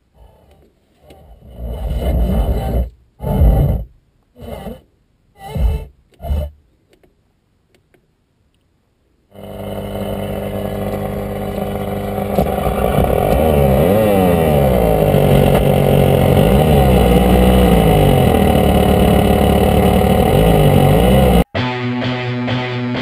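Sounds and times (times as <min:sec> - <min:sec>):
car engine revving: 0:09.4 - 0:21.5.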